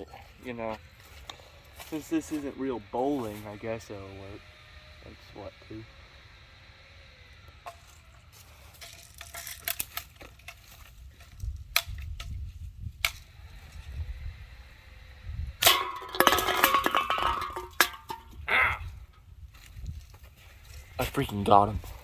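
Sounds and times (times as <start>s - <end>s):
cans clattering and clinking: 15.6s - 18.4s.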